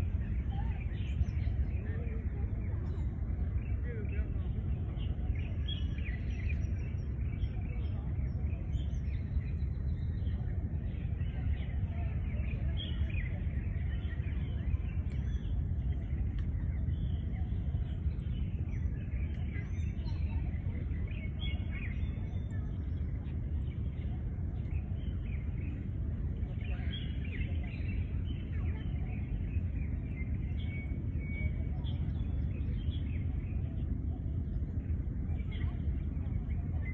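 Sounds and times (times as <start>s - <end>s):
low background rumble: 0.0s - 36.9s.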